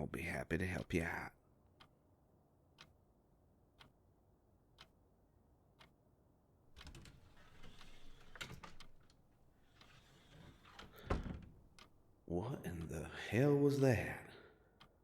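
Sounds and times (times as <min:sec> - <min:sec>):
clock ticking: 0:02.7 - 0:03.0, 0:03.7 - 0:04.0, 0:04.7 - 0:05.0, 0:05.7 - 0:06.0, 0:10.6 - 0:14.0, 0:14.8 - 0:15.0.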